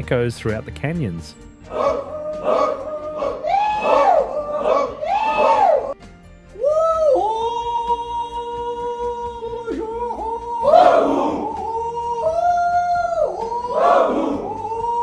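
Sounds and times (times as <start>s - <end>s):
men howling swooping calls: 1.6s - 6.0s, 6.6s - 15.0s
loud rough cry: 1.7s - 6.0s, 10.6s - 15.0s.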